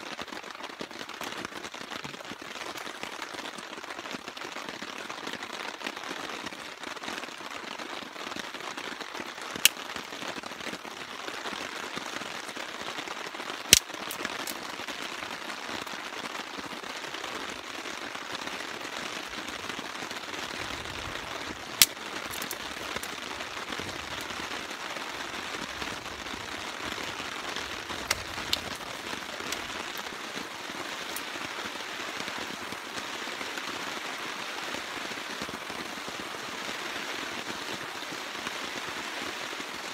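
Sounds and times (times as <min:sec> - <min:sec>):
rain falling: 0:00.0 - 0:39.9
sharp pops: 0:27.6 - 0:30.1.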